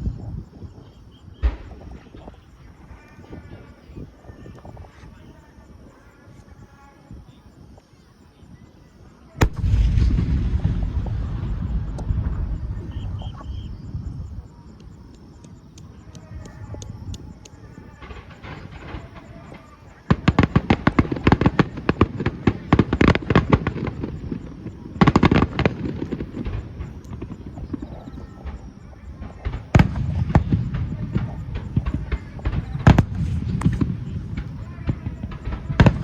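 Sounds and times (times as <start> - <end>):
fireworks bursts and crackles: 0.0 - 36.0
sharp firework bangs: 1.3 - 2.8, 9.4 - 36.0.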